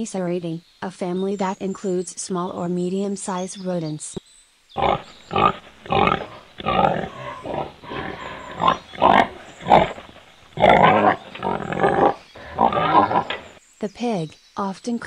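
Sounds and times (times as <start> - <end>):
wild boar grunting: 4.8 - 13.6.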